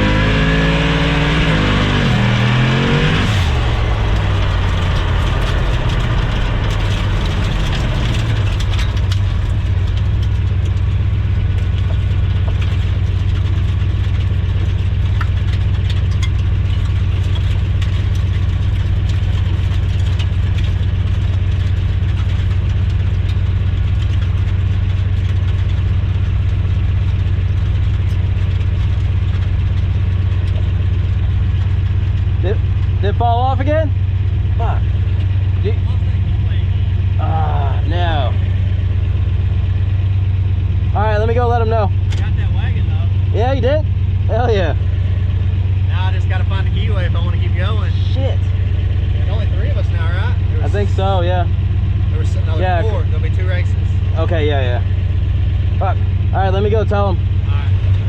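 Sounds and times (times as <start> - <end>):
truck engine idling: 2.5 - 58.0.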